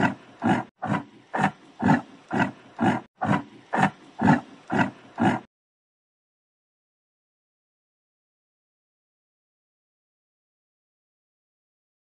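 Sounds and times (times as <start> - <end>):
yak grunting: 0.0 - 5.5.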